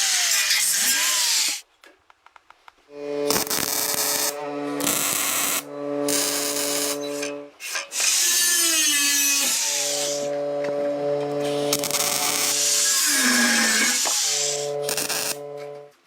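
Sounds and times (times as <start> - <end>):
handheld power tool running: 0.0 - 1.6, 3.0 - 15.9
steady humming tone: 2.9 - 7.6, 9.3 - 16.0.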